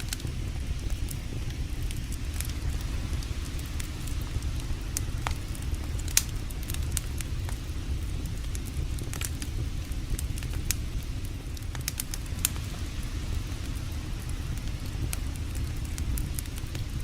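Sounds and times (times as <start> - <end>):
campfire crackling and popping: 0.0 - 17.0
creek water rushing: 2.0 - 8.1, 12.2 - 17.0.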